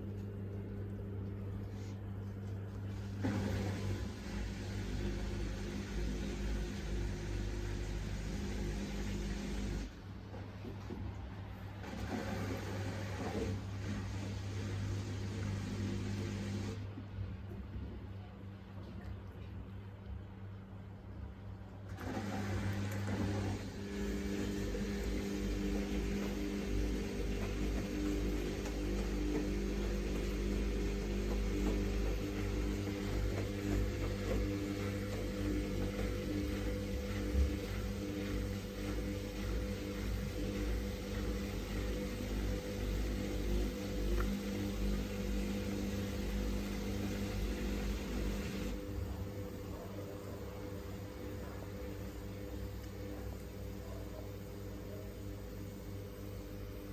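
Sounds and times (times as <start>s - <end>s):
washing machine hum: 0.0s - 56.9s
washing machine rushing: 2.8s - 17.2s, 21.8s - 56.9s
motor whine: 22.1s - 53.5s.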